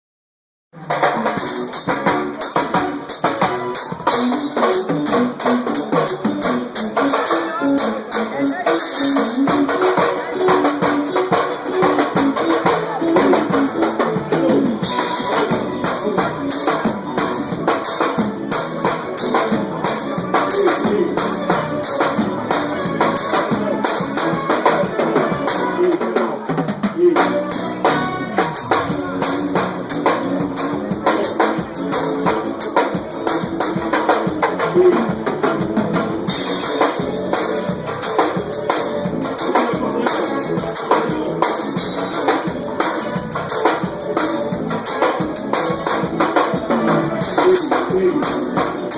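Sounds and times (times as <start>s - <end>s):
band playing a song: 0.8s - 48.9s
drum kit: 0.8s - 48.9s
drum roll: 0.8s - 48.9s.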